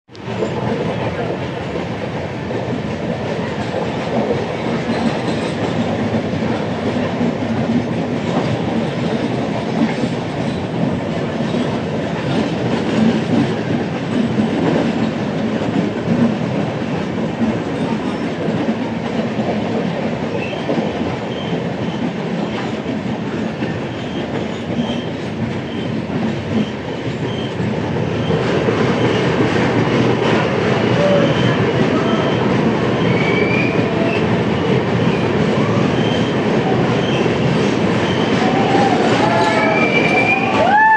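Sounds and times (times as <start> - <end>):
train wheels clattering over rails: 0.1 - 40.9.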